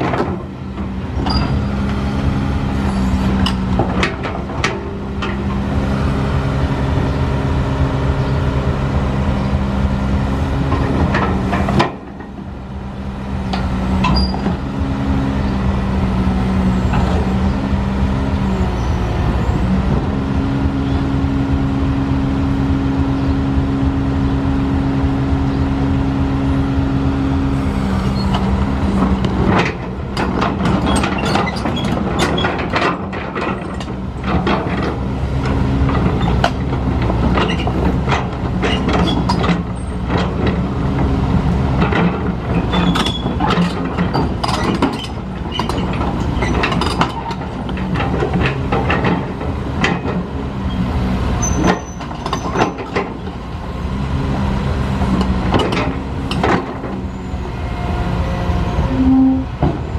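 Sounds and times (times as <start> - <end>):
diesel construction machinery: 0.0 - 59.9
metallic clanks and knocks: 41.8 - 50.3, 55.1 - 57.0.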